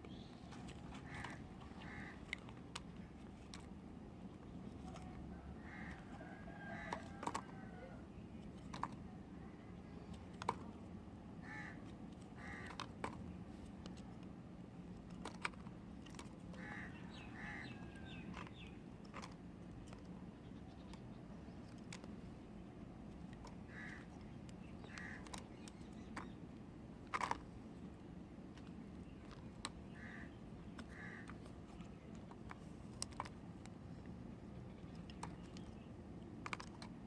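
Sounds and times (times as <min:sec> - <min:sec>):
bird calling: 0:00.0 - 0:02.4, 0:04.8 - 0:08.1, 0:11.4 - 0:12.8, 0:16.5 - 0:18.8, 0:23.6 - 0:26.4, 0:29.1 - 0:32.0.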